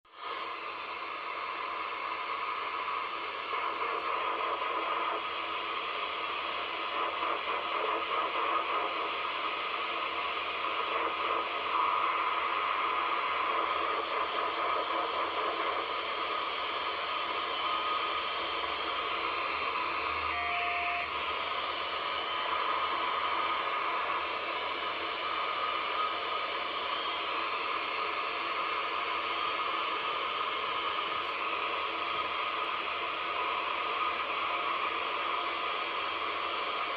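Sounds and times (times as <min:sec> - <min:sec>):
radio signal noise band: 0:00.1 - 0:36.9
radio static hiss: 0:00.1 - 0:36.9
short beep: 0:20.2 - 0:21.1.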